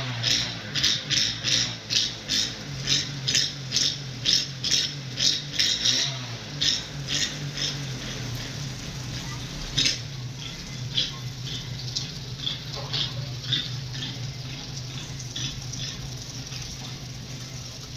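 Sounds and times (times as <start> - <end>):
rapid uneven rattling: 0.2 - 17.9
steady low hum: 6.3 - 17.9.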